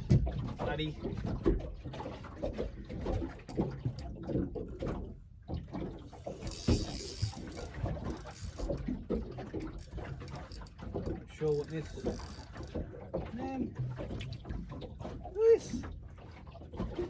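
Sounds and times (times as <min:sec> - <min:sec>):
fishing reel ratchet clicking: 0:06.2 - 0:08.8, 0:09.6 - 0:10.7, 0:11.5 - 0:12.7.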